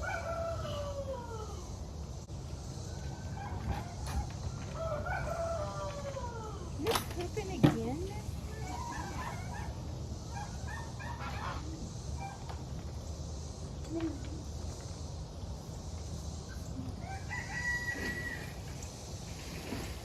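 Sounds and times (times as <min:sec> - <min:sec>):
rooster crowing: 0:00.0 - 0:01.8, 0:02.8 - 0:06.8, 0:16.9 - 0:18.8.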